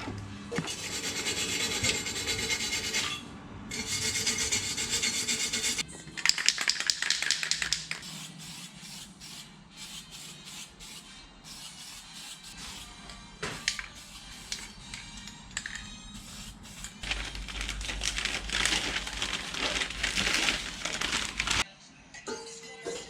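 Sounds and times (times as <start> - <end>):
rasping scraping strokes: 0.6 - 5.8.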